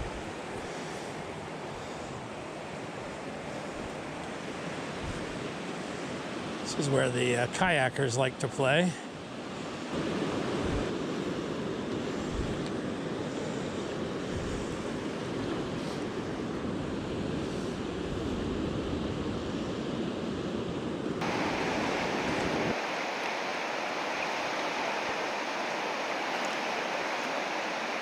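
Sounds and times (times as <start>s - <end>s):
wind gusts on microphone: 0.0s - 7.8s, 9.2s - 28.0s
river rapids rushing: 21.2s - 28.0s.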